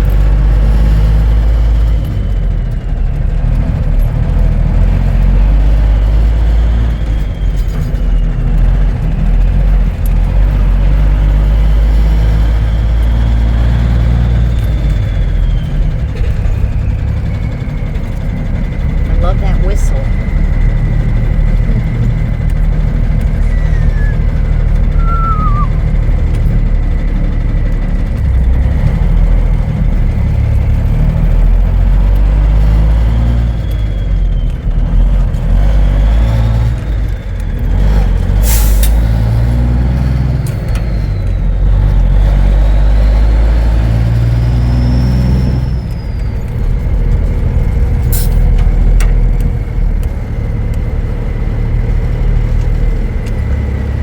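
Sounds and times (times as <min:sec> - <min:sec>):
truck diesel engine running: 0:00.0 - 0:54.0
turbo whistle: 0:23.4 - 0:26.0.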